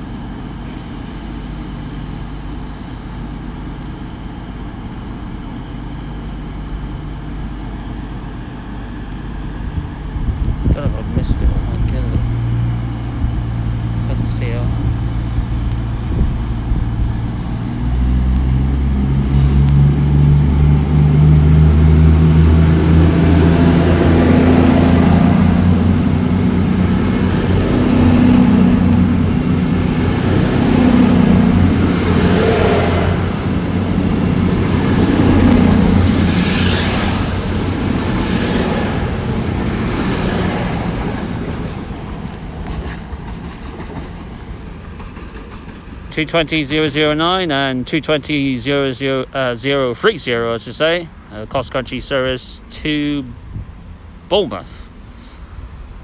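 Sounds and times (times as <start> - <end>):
high whine: 0.0 - 43.2
diesel train engines droning: 0.0 - 56.0
wheels clattering over rail joints: 36.9 - 46.1.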